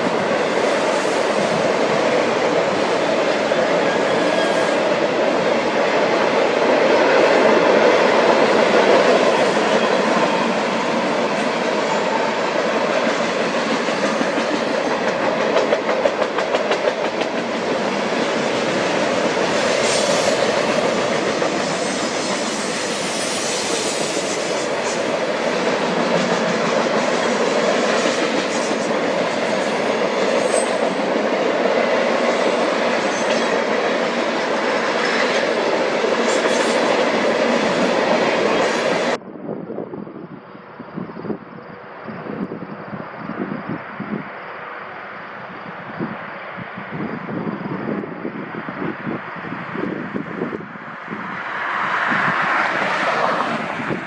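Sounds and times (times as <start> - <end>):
clickety-clack over rail joints: 0.0 - 39.2
train wheels rumbling on rails: 0.0 - 54.0.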